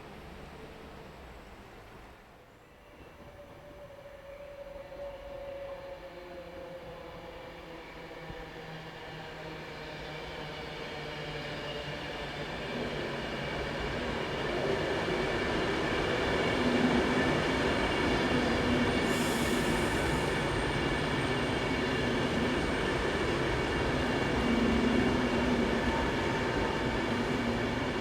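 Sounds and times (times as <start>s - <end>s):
train rumbling on rails: 0.0s - 2.4s, 9.2s - 28.0s.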